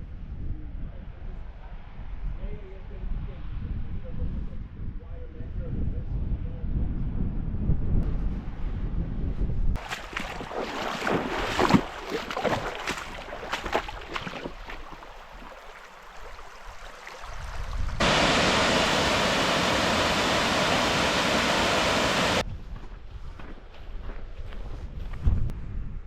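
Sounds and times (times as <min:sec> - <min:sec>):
loud rush of water: 0:09.8 - 0:22.4.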